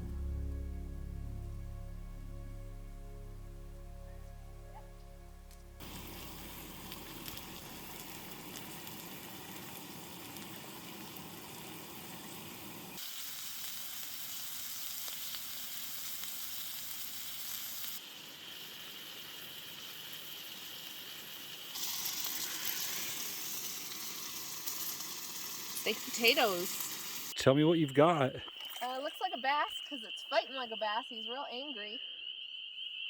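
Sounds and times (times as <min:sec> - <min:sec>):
food sizzling in frying: 0:05.6 - 0:27.4.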